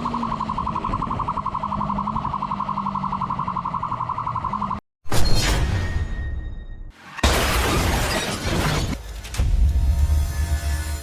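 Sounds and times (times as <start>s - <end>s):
pulsing electronic siren: 0.0s - 4.8s.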